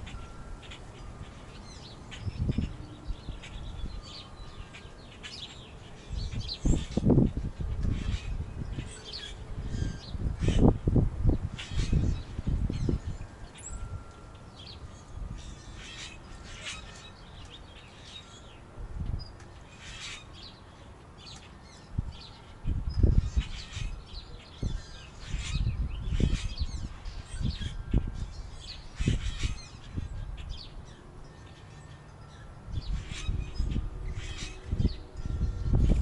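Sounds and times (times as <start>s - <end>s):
birds chirping and calling: 0.0s - 36.0s.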